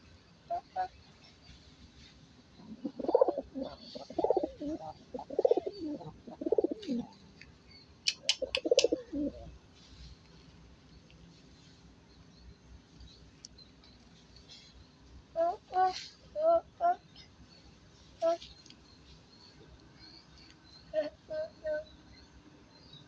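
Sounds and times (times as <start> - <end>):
pigeons cooing: 2.6 - 7.2, 8.1 - 9.6
sharp clicks: 8.0 - 9.0.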